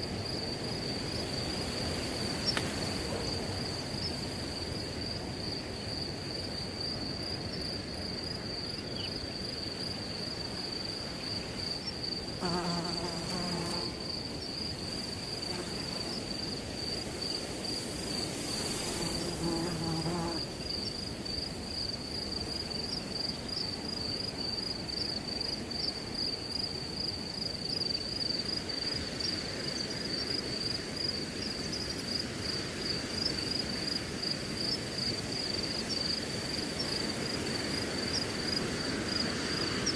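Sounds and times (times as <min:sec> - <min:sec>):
crickets chirping: 0:00.0 - 0:39.9
wind rustling through grass: 0:00.0 - 0:39.9
flying insect buzzing: 0:12.1 - 0:14.2, 0:15.2 - 0:16.9, 0:17.7 - 0:20.7.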